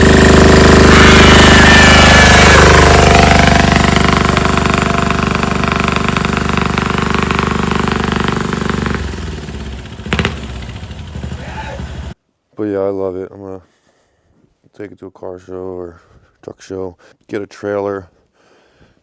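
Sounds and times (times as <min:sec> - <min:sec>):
diesel engine clattering: 0:00.0 - 0:12.2.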